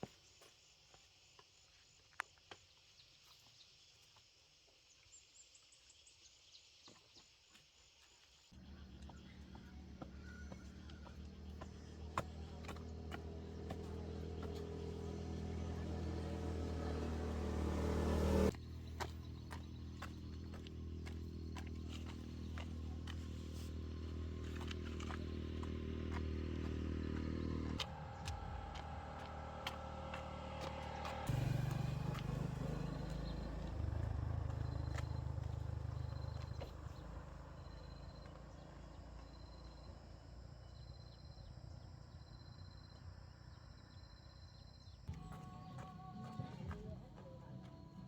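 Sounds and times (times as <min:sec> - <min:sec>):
engine running: 0:08.6 - 0:40.5, 0:45.1 - 0:48.0.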